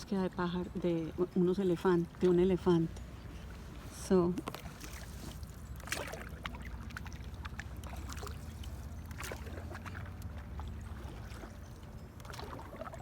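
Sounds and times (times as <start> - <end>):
low steady rumble: 0.0 - 13.0
paddle splashing water: 2.1 - 13.0.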